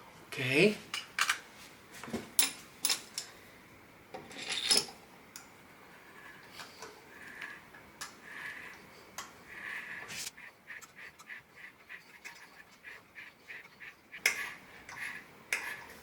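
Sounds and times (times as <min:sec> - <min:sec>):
metal tools clinking: 0:04.2 - 0:05.0.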